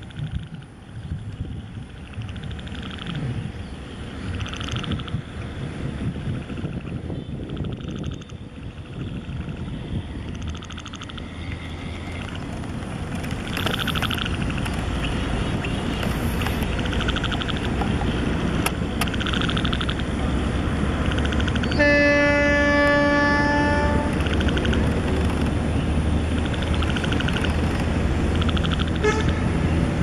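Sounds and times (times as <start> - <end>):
diesel train rumbling: 0.0 - 30.0
train horn blast: 21.6 - 24.2, 29.0 - 29.7.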